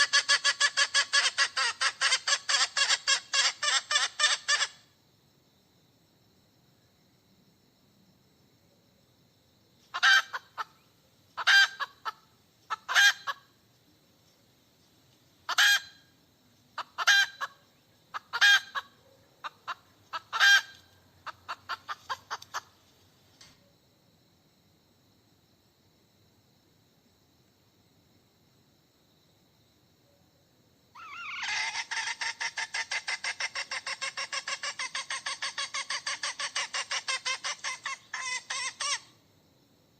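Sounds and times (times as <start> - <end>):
hen cackling: 0.0 - 4.8, 9.9 - 10.8, 11.4 - 13.5, 15.5 - 16.0, 16.8 - 22.8, 30.9 - 39.2.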